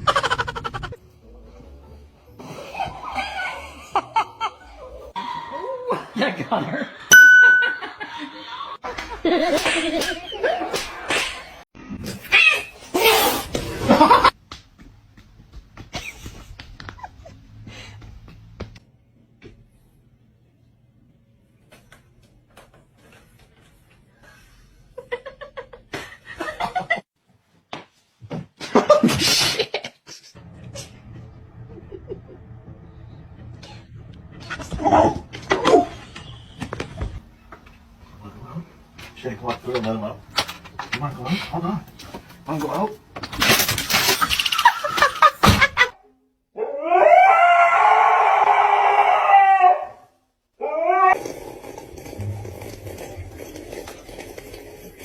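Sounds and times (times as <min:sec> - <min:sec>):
person laughing: 0:00.0 - 0:01.0
dog howling: 0:46.6 - 0:51.2.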